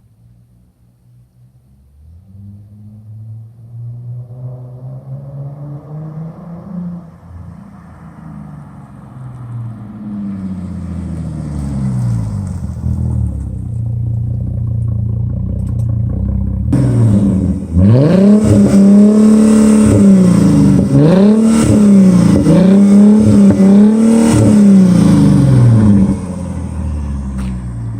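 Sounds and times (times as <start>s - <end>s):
car exhaust revving: 11.6s - 27.9s.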